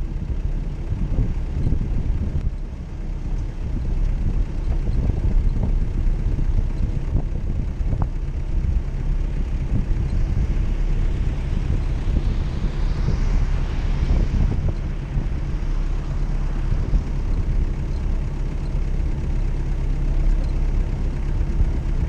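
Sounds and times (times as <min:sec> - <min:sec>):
engine rumbling: 0:00.0 - 0:22.0
rising hiss: 0:09.5 - 0:17.9.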